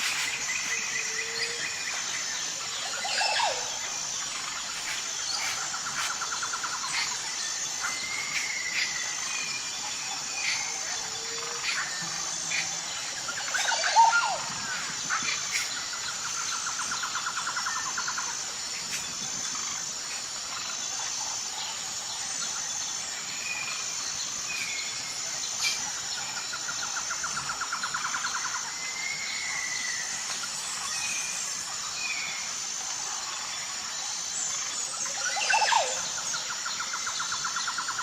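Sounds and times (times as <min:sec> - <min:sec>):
high-pitched insect chorus: 0:00.0 - 0:38.0
wild birds calling: 0:09.8 - 0:17.3.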